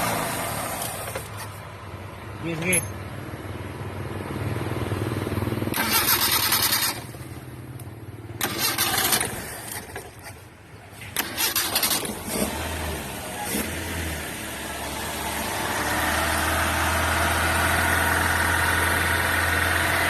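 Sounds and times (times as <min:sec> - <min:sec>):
loud engine bursts: 0:05.7 - 0:07.2, 0:08.4 - 0:10.1, 0:11.2 - 0:20.0.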